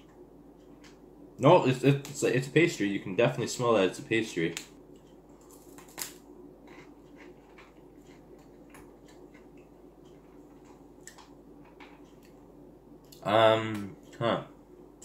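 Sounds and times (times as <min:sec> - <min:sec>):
low steady room hum: 0:00.0 - 0:15.0
chewing soft crunches: 0:04.9 - 0:12.4.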